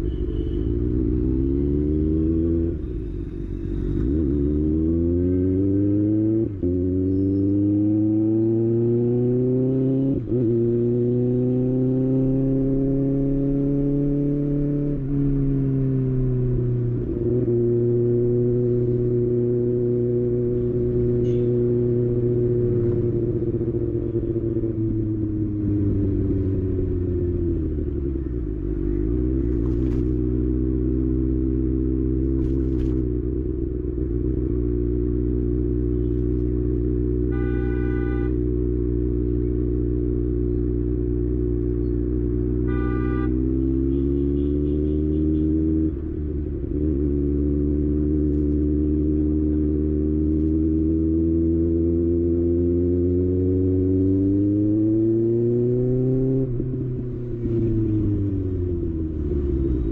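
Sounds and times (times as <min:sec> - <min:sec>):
vehicle horn honks: 0:00.0 - 0:01.0, 0:21.2 - 0:21.6, 0:37.2 - 0:38.5, 0:42.6 - 0:45.6
motorcycle engine at low revs: 0:00.0 - 0:59.9.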